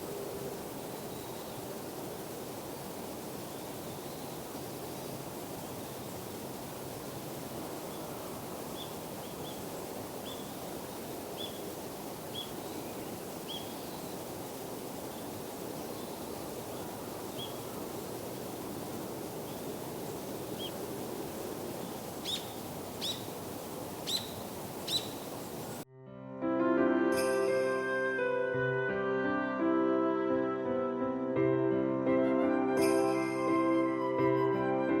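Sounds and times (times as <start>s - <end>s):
high bird calls: 19.4s - 25.8s.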